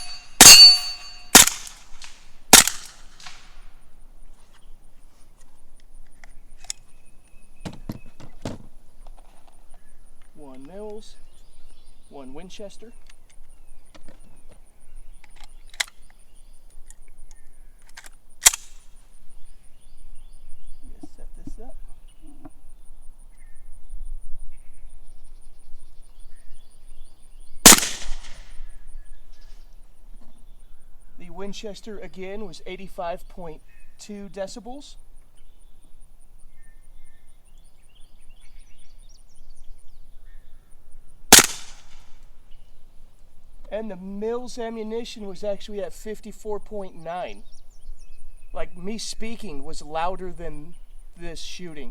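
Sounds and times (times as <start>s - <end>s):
suppressed gunshots: 0.0s - 3.6s, 18.4s - 18.9s, 27.6s - 28.7s, 41.3s - 42.2s
faint bird chirps: 4.0s - 17.9s, 18.9s - 27.7s, 28.5s - 41.3s, 46.7s - 51.9s.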